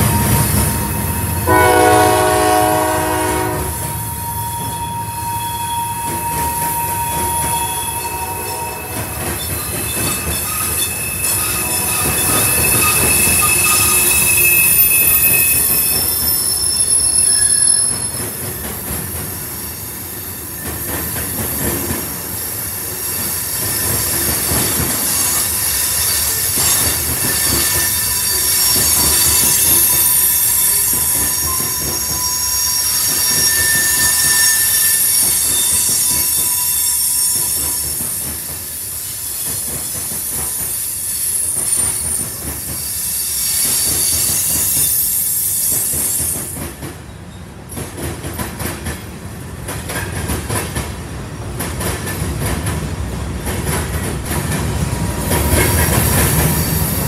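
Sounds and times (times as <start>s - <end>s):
high-pitched wheel squeals: 0.0s - 18.4s, 22.4s - 46.5s
train wheels rumbling on rails: 0.0s - 57.0s.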